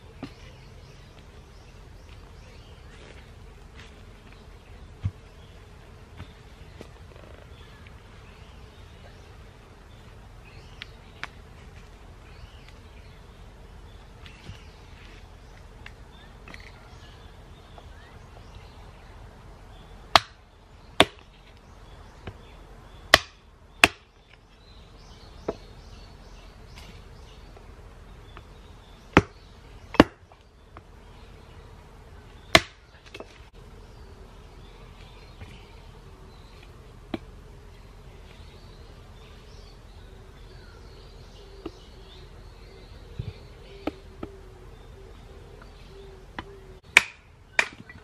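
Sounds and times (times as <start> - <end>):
hatchet chopping wood: 20.1 - 20.4, 21.0 - 21.3, 23.1 - 24.1, 29.1 - 30.3, 32.5 - 33.3, 46.9 - 48.0.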